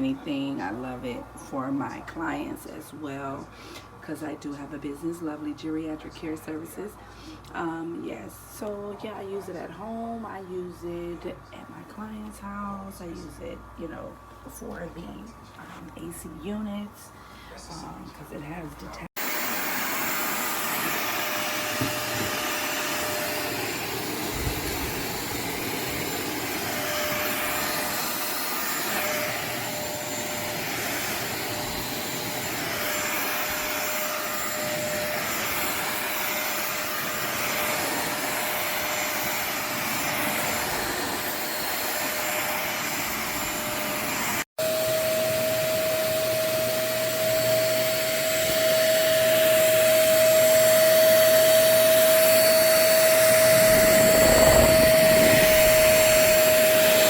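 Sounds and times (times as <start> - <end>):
stick vacuum running: 19.2 - 57.0.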